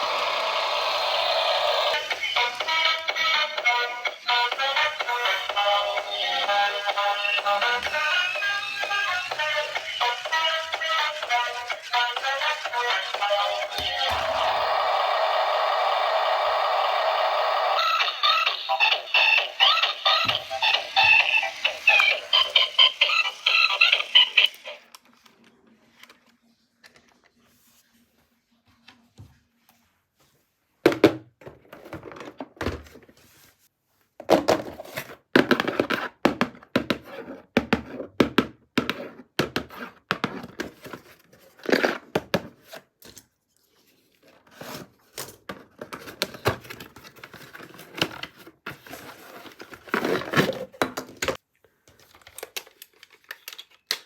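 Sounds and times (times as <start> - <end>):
plastic and cardboard crinkling: 39.0 - 54.0.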